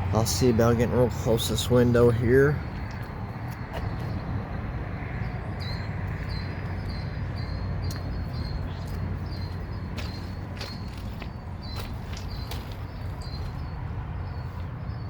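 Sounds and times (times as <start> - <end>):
low outdoor rumble: 0.0 - 15.0
small bird chirping: 5.6 - 15.0.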